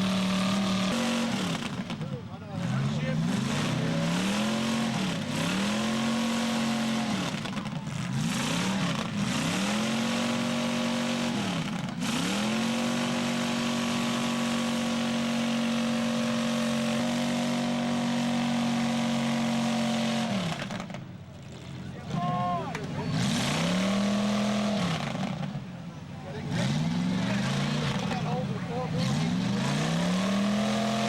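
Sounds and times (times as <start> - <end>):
car engine revving hard: 0.0 - 21.0, 22.0 - 31.0.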